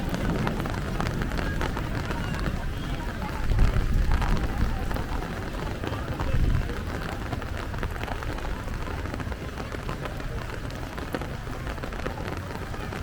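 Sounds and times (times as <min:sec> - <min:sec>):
rain on a street: 0:00.0 - 0:13.0.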